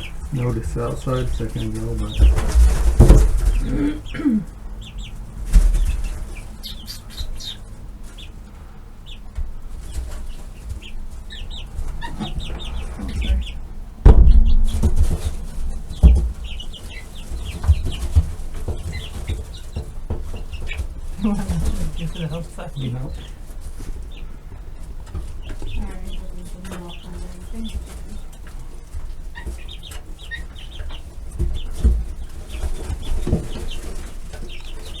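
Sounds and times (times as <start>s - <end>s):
chicks peeping and clucking: 0.0s - 35.0s
loud low thumps: 14.0s - 16.7s.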